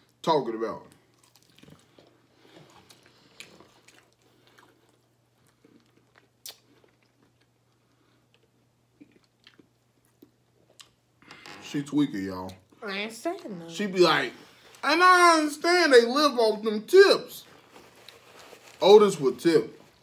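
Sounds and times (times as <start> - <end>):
chewing and crunching food: 0.9 - 11.0.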